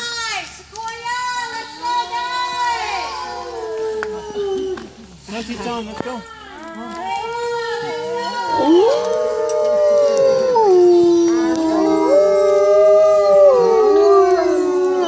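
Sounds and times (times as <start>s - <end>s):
wolves howling in chorus: 2.2s - 4.9s, 7.4s - 15.0s.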